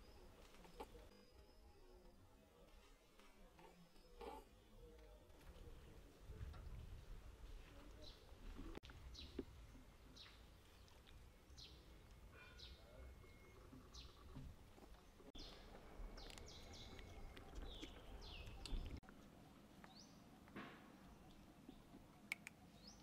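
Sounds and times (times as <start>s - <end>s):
faint bird chirps: 9.1s - 20.2s.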